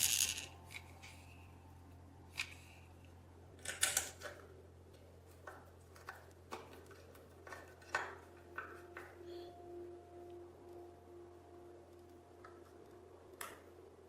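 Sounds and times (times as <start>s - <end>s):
small metal parts clicking: 0.0s - 0.8s
faint steady tone: 8.2s - 14.0s.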